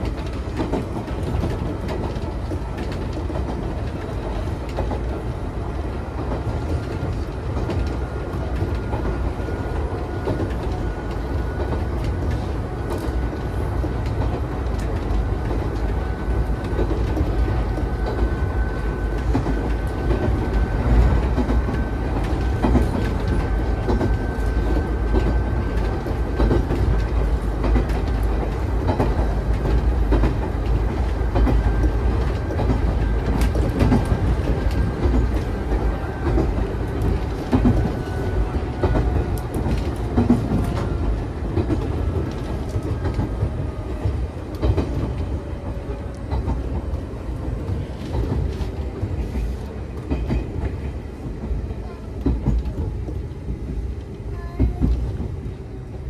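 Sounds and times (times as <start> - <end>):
rail-joint clicks: 0.0 - 55.4
wheels rumbling on rail: 0.0 - 56.0.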